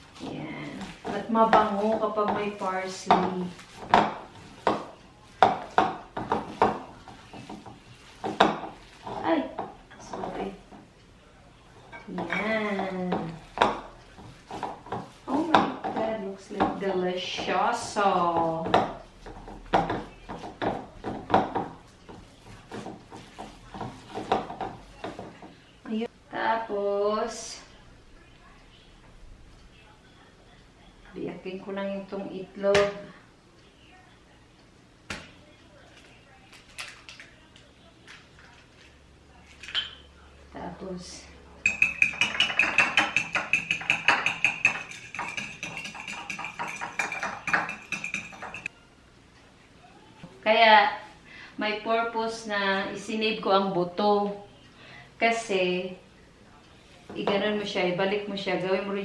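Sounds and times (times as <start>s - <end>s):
egg beaten in a bowl: 0.2s - 10.8s, 12.2s - 25.5s, 41.6s - 48.7s
kitchen utensils and dishes knocking: 0.8s - 10.8s, 11.9s - 25.5s, 41.6s - 48.7s.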